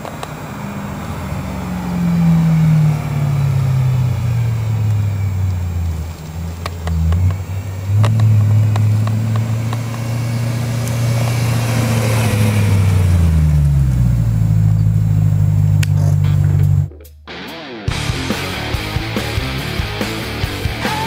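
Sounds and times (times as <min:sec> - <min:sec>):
loud car exhaust note: 0:00.0 - 0:17.0.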